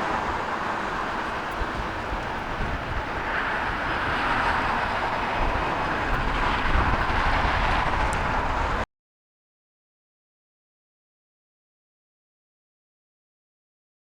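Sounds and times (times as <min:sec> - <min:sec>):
jet engine roar: 0:00.0 - 0:08.9.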